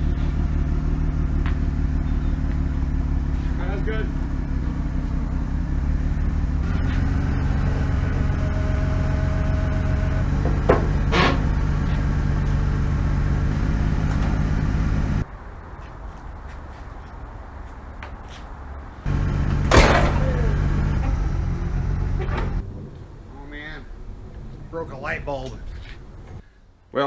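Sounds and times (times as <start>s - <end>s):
engine running steadily: 0.0s - 15.3s, 19.0s - 26.4s
sharp knocks: 10.3s - 11.6s.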